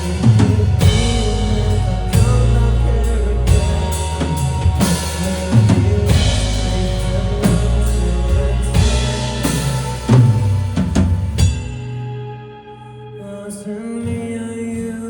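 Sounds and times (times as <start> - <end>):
drum kit beat: 0.0 - 12.0
band playing instrumental: 0.0 - 12.7.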